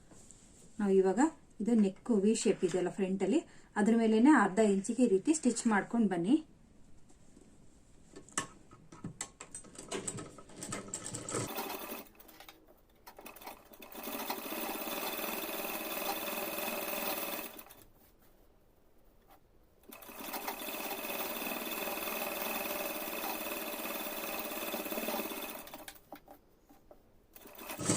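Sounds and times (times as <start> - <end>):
sewing machine running: 11.0 - 12.4, 13.1 - 17.8, 19.8 - 26.0, 27.4 - 27.9.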